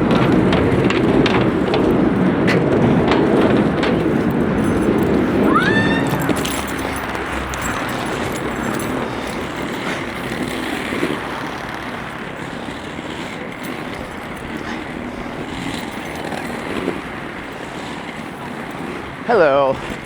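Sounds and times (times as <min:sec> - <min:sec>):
skate wheels rolling on pavement: 0:00.0 - 0:20.0.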